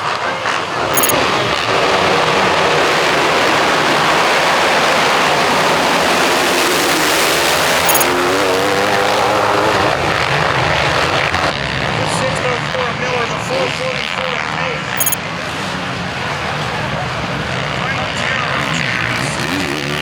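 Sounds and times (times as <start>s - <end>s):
motocross bikes droning: 15.4s - 20.0s.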